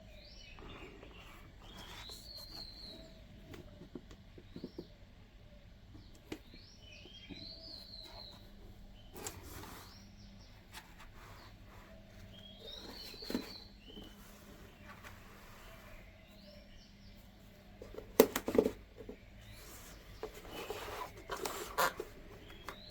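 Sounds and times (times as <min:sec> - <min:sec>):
faint bird chirps and trill: 0:00.0 - 0:22.9.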